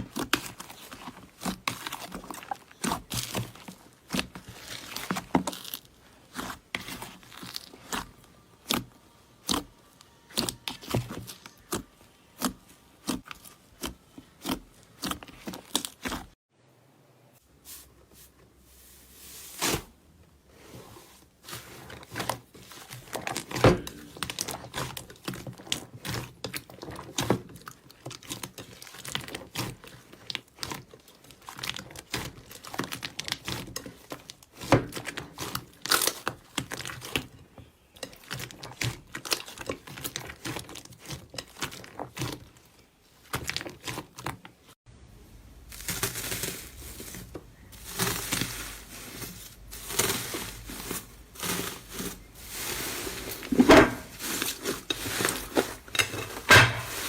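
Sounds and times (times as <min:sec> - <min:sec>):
slime crackling and popping: 0:00.0 - 0:09.7, 0:45.7 - 0:48.6.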